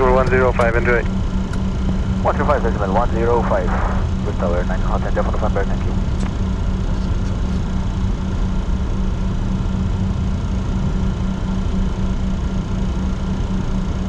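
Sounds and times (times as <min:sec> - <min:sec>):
held hum: 0:00.0 - 0:09.7
cockpit low rumble: 0:00.0 - 0:14.0.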